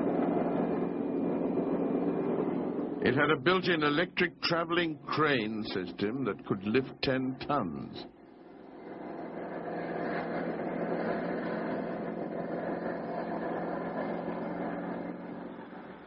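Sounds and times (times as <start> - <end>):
helicopter engines droning: 0.0 - 16.0.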